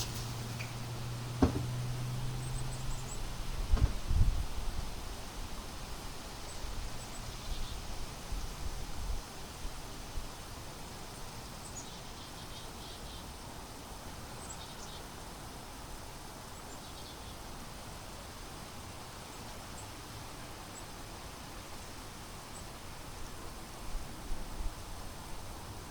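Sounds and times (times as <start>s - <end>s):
wind buffeting microphone: 1.3s - 5.0s.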